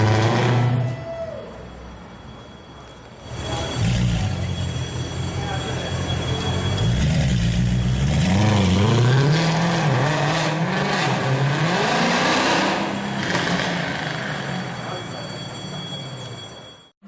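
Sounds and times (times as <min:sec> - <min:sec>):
car engine revving: 0:03.3 - 0:14.8.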